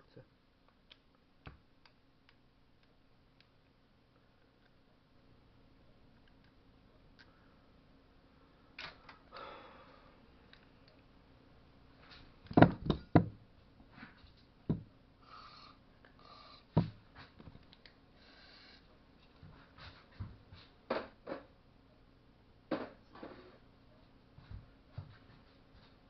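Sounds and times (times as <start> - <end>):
metal parts knocking on workbench: 12.5 - 13.4.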